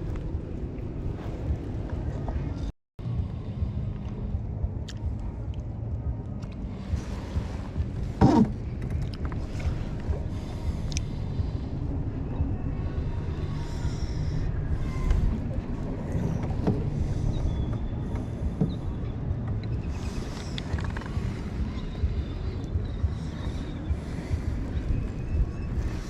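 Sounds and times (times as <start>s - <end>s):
wind rumbling on microphone: 0.0s - 26.0s
water lapping against kayak: 6.5s - 26.0s.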